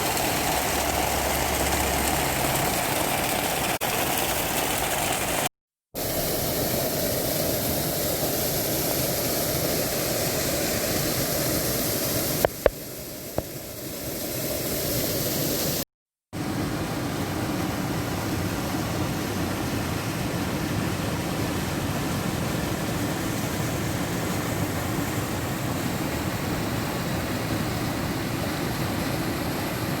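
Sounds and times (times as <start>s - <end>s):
heavy rain hissing: 0.0s - 15.8s.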